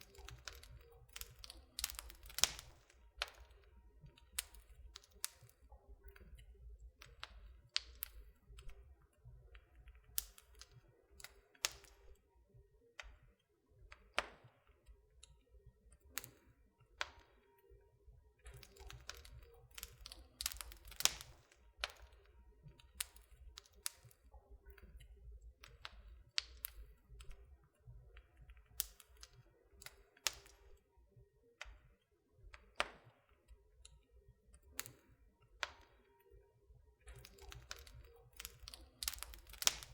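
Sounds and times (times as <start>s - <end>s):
wood fire crackling: 0.0s - 12.2s, 18.4s - 30.8s, 37.0s - 39.9s.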